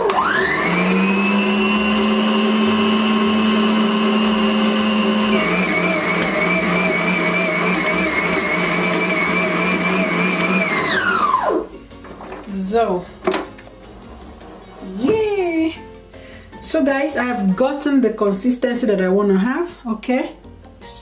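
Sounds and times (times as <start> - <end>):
stand mixer motor whine: 0.0 - 11.7.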